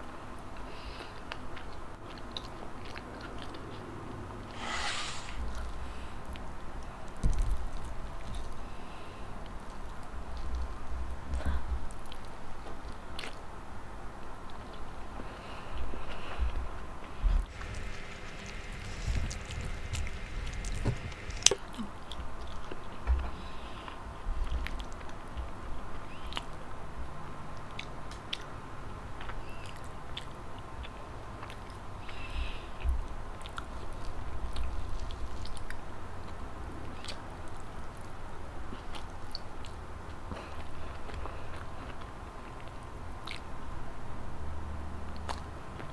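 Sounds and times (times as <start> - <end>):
person chewing soft food: 0.4 - 4.0, 11.4 - 13.5, 17.4 - 25.6, 27.5 - 43.7, 45.1 - 45.9.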